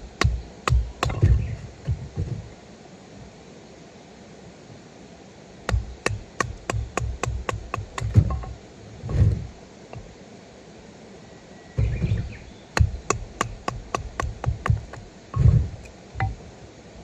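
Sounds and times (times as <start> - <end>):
heavy thuds: 0.0 - 2.5, 5.7 - 10.1, 11.8 - 16.4.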